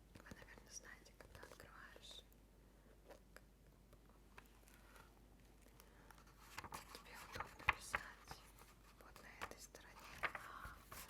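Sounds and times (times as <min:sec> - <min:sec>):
faint rustle: 0:04.3 - 0:11.0.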